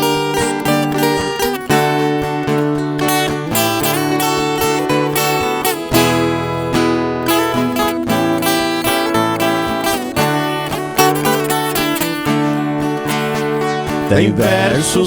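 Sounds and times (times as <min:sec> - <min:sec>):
acoustic guitars strumming: 0:00.0 - 0:15.0.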